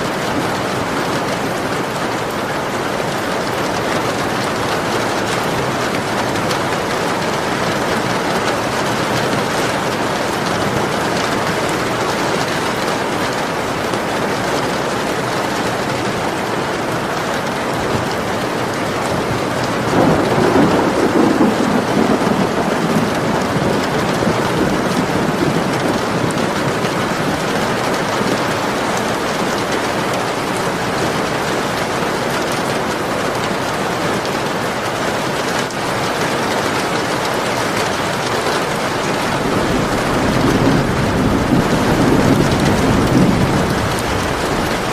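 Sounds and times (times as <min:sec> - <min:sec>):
heavy rain falling: 0:00.0 - 0:44.9
thunder rolling: 0:19.2 - 0:28.1, 0:39.0 - 0:44.9.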